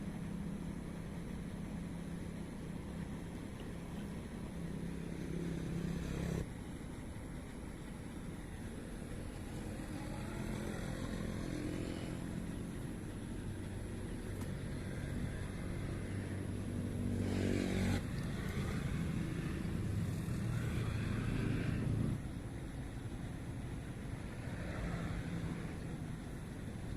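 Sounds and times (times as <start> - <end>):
small engine revving: 17.0 - 22.2.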